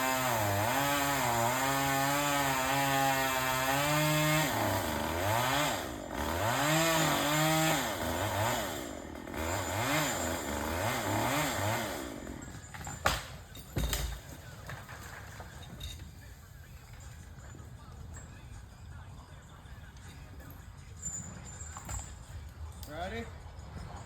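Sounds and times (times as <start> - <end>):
chainsaw revving: 0.0 - 12.6.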